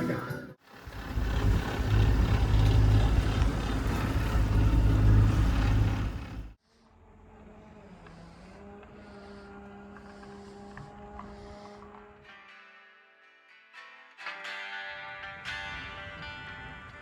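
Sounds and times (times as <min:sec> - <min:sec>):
low rumble of sailboat: 0:00.7 - 0:06.6.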